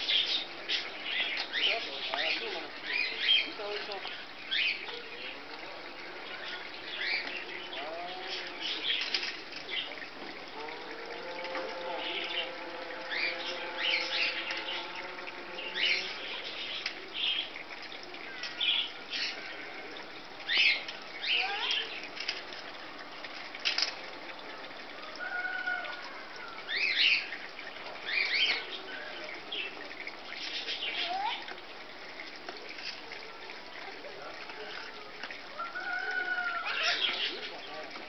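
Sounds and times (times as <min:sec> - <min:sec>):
small birds chirping: 0:00.0 - 0:10.2, 0:12.0 - 0:22.4, 0:26.7 - 0:38.0
outdoor background hiss: 0:00.0 - 0:38.0.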